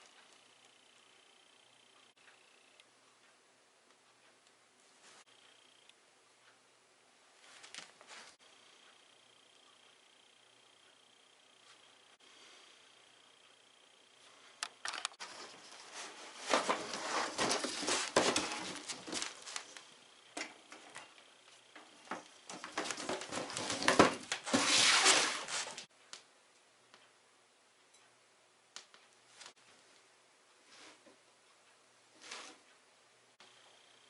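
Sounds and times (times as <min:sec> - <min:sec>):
handling noise rustling and scraping: 0:07.4 - 0:08.4, 0:14.2 - 0:25.9, 0:32.1 - 0:32.8.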